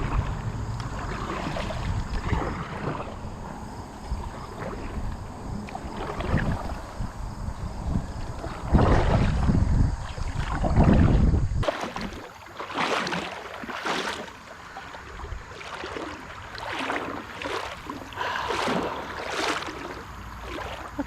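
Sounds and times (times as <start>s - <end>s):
kayak paddle splashing: 0.0s - 7.4s, 8.0s - 21.0s
wind buffeting microphone: 0.0s - 11.7s.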